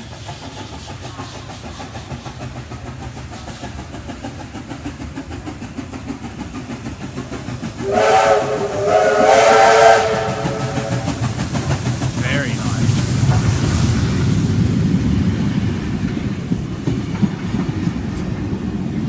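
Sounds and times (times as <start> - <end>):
steam locomotive chugging: 0.0 - 19.0
steam whistle: 7.8 - 11.3.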